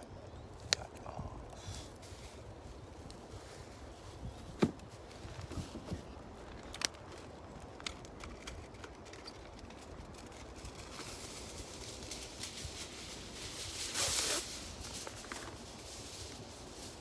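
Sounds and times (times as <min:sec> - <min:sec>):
wood fire crackling: 0:06.6 - 0:17.0
hiss of fire: 0:10.8 - 0:17.0.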